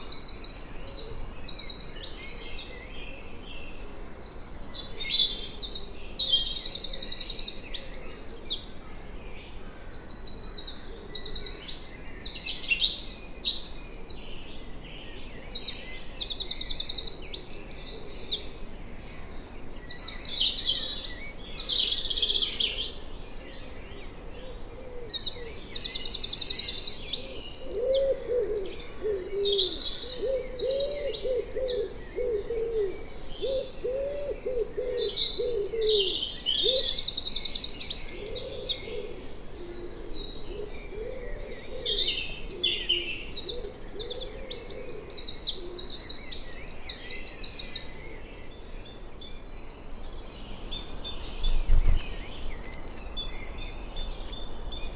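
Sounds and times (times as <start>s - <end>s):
songbirds trilling: 0.0s - 54.9s
low bird hooting: 27.6s - 36.9s.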